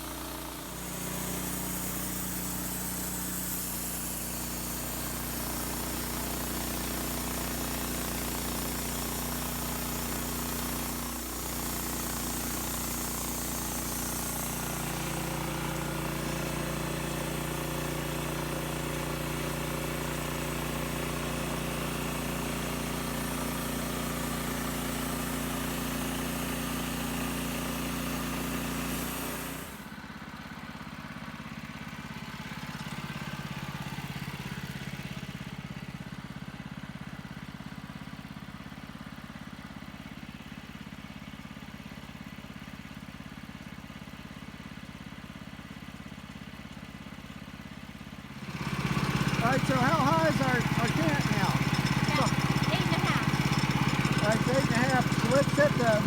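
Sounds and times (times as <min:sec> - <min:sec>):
gas engine running: 0:00.0 - 0:38.3, 0:46.1 - 0:56.0
saw blade cutting log: 0:00.6 - 0:18.5, 0:21.2 - 0:29.8, 0:48.7 - 0:56.0.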